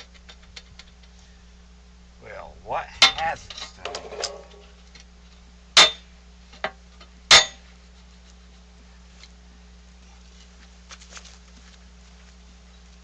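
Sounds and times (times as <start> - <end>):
steady low hum: 0.0 - 13.0
sharp metal clanks: 3.0 - 4.8, 5.8 - 7.6.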